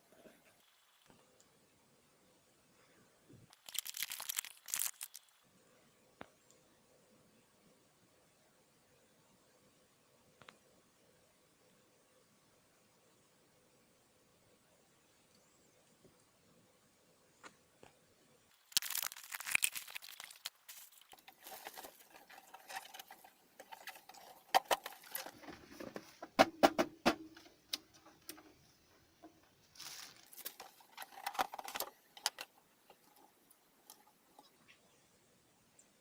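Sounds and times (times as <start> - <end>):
packaging rustling and tearing: 3.5 - 5.4, 18.6 - 25.4, 29.7 - 32.5.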